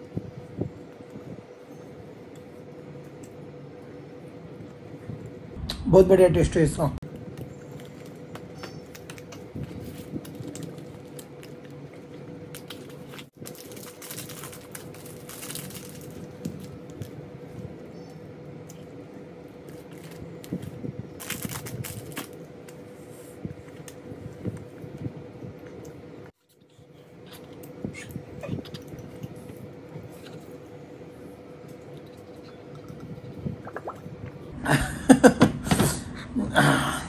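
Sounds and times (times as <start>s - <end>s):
faint steady hum: 0.0s - 37.0s
wrapper crinkling: 7.4s - 17.2s, 19.6s - 22.8s.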